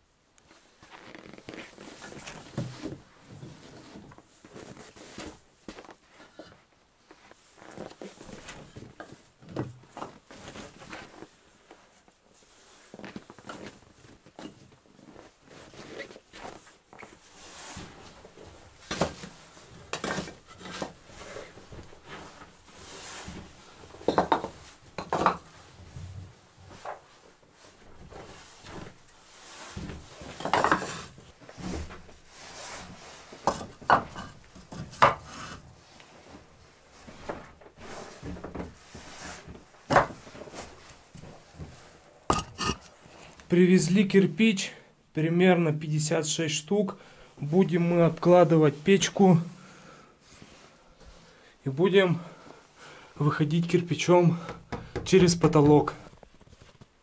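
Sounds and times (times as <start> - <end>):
pots and dishes clattering: 42.3 - 42.8.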